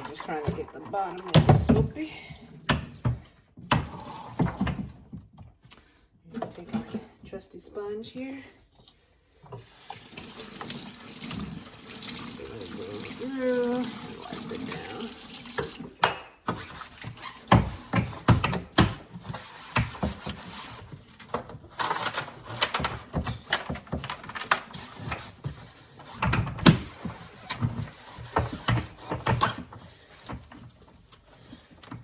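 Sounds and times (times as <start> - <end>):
sponge scrubbing plastic tray: 12.5 - 15.2, 16.5 - 24.0, 24.6 - 32.0.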